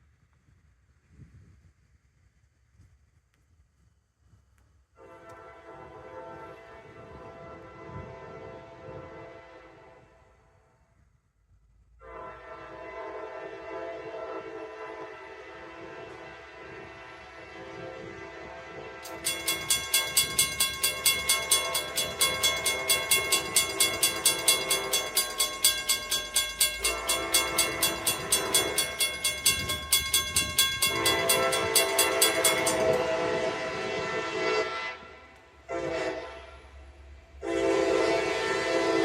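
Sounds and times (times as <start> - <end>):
locomotive air horn blasts: 5.0 - 10.3, 12.0 - 25.6, 26.7 - 36.8, 37.4 - 39.0
railroad crossing bell ringing: 19.0 - 34.2.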